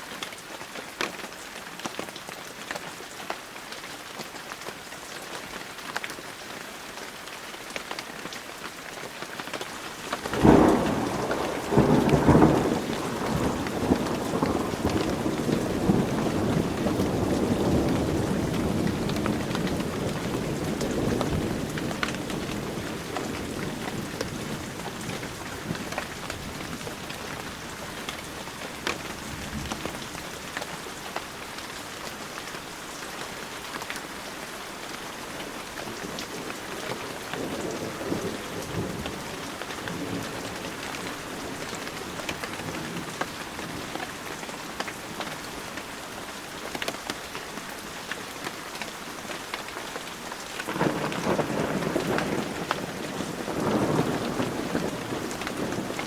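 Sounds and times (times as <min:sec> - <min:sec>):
heavy rain: 0:00.0 - 0:56.0
raindrops ticking on surfaces: 0:00.0 - 0:56.0
low thunder rumble: 0:10.2 - 0:30.8, 0:50.7 - 0:56.0.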